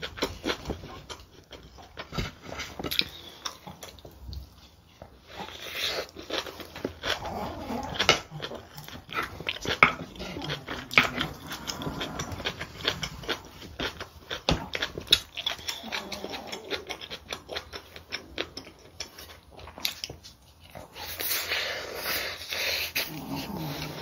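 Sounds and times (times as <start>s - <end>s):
wet chewing and mouth clicks: 0.0s - 24.0s.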